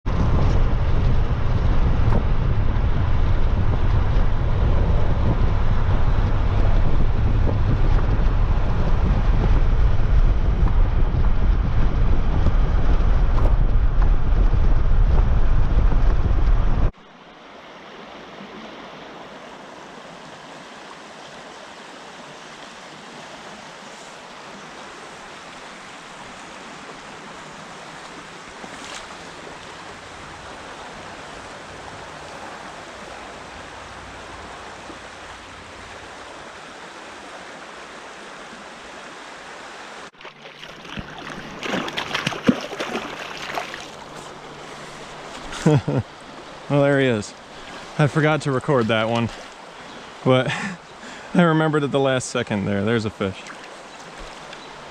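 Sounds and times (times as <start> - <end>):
wind buffeting microphone: 0.0 - 17.0
creek water rushing: 16.9 - 54.9.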